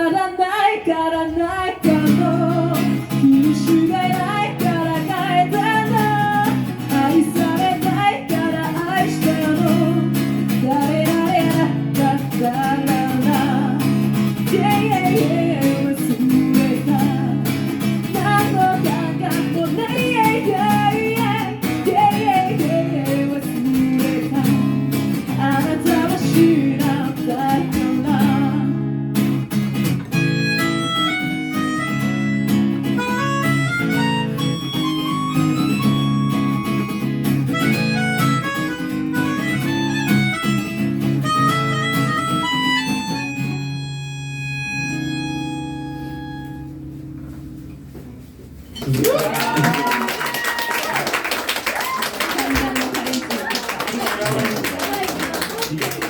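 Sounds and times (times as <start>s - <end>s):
person singing: 0.0s - 28.8s
acoustic guitar strumming: 1.4s - 49.0s
harmonica playing: 30.1s - 46.9s.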